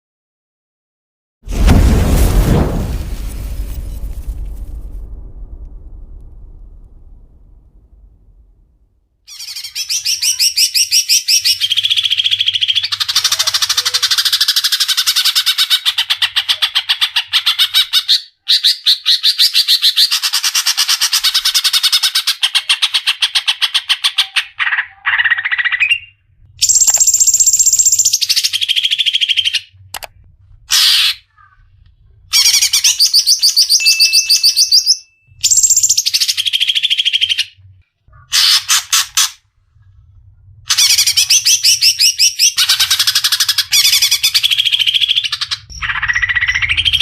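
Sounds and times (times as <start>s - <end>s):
bird high held whistles: 32.4s - 37.0s.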